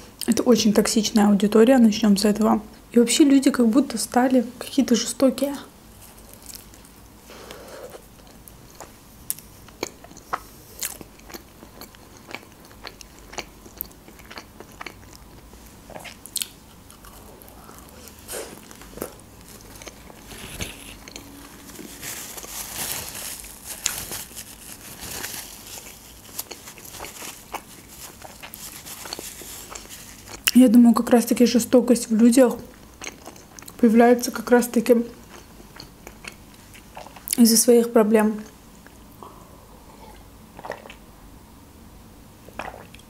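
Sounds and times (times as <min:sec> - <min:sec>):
chewing: 0:06.1 - 0:24.2, 0:25.0 - 0:30.6, 0:32.7 - 0:33.8, 0:35.2 - 0:37.4.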